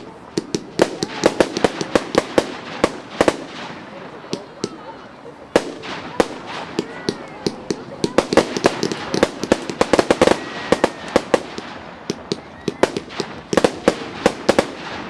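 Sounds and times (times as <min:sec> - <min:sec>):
fireworks bangs and crackles: 0:00.0 - 0:15.0
firework whistling glide: 0:08.1 - 0:15.0.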